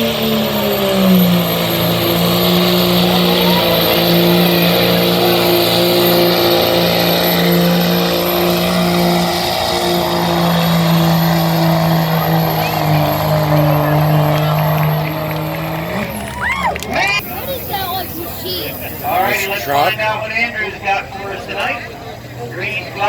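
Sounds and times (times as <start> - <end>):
truck engine running hard: 0.0 - 23.0
high steady whistle: 17.2 - 20.0.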